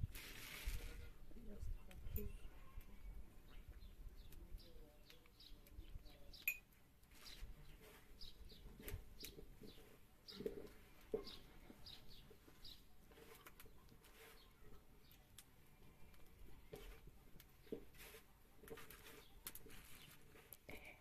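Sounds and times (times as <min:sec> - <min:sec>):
hands handling food: 0:07.0 - 0:21.0.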